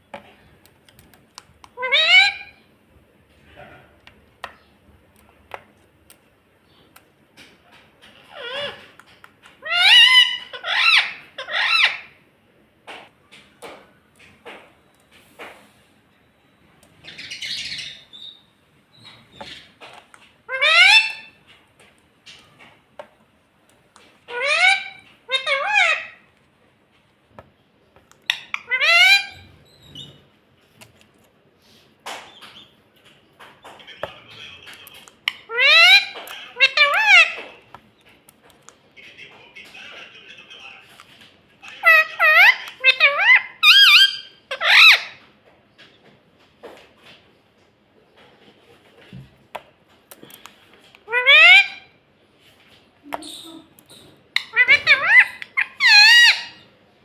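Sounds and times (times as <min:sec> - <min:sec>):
parakeet calling: 0:01.7 - 0:02.7, 0:08.2 - 0:09.0, 0:09.6 - 0:12.2, 0:17.0 - 0:19.8, 0:20.4 - 0:21.4, 0:24.2 - 0:26.3, 0:28.2 - 0:30.2, 0:35.3 - 0:37.5, 0:41.6 - 0:45.2, 0:51.0 - 0:52.0, 0:53.1 - 0:56.8.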